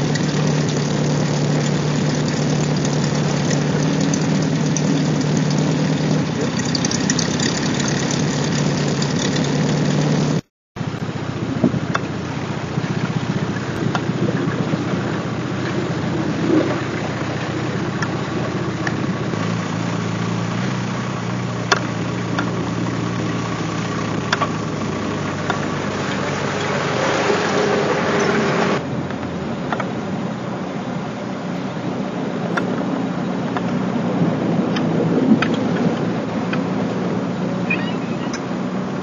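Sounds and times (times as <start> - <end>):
distant car engine climbing: 0.0 - 39.0
sharp ticks: 21.6 - 22.6.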